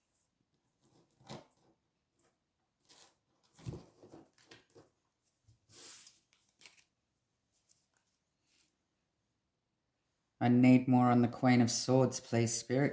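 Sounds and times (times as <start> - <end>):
cards rustling and tapping: 5.8 - 7.0.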